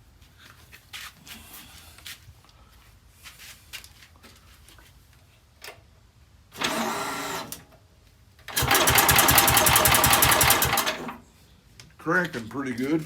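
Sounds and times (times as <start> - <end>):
electric starter cranking engine: 6.6 - 7.6, 8.5 - 11.2.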